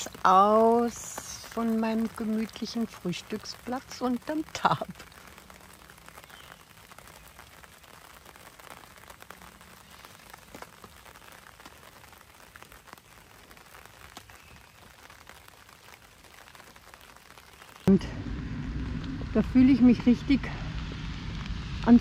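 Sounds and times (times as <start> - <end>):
light rain patter: 0.0 - 22.0
raindrops ticking on a tarp: 0.0 - 22.0.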